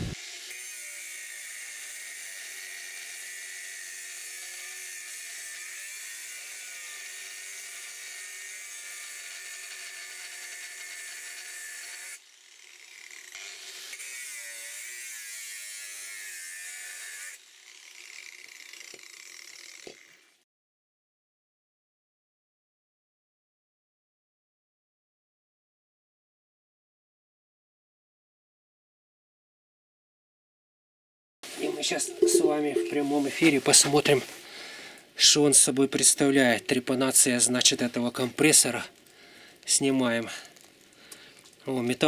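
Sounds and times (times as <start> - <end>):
angle grinder cutting steel: 0.0 - 20.2.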